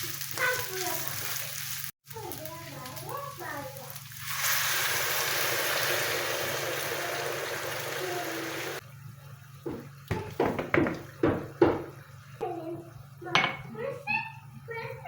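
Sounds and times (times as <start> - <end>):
tap water running: 3.1 - 12.2.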